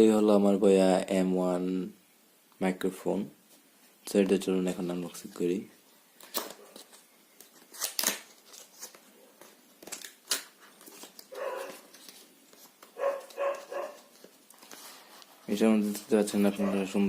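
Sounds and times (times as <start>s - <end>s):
cardboard packaging rustling: 6.2s - 17.0s.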